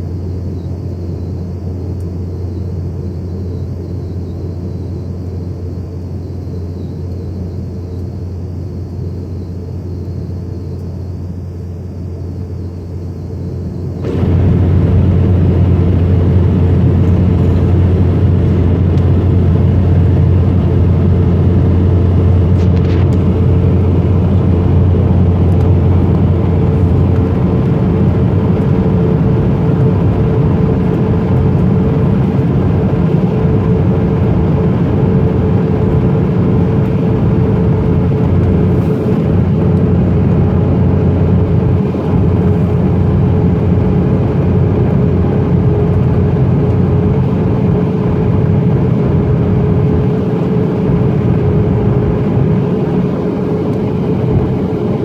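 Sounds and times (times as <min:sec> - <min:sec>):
steady hum: 0:00.0 - 0:55.0
jet engines roaring: 0:13.4 - 0:55.0.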